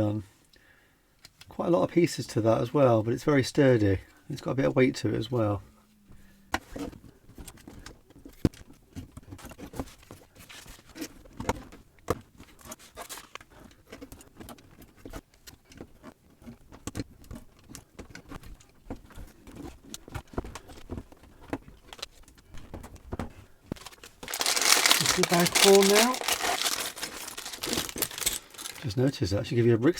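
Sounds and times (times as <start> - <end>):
plastic bag crinkling: 23.7 - 29.2
plastic bricks clicking: 23.8 - 29.0.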